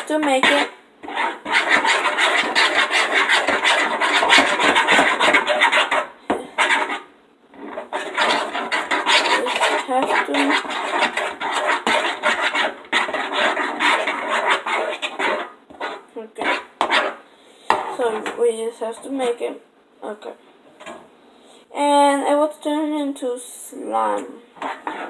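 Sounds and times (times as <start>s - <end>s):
utensil scraping a container: 0.0s - 19.1s, 24.6s - 25.0s.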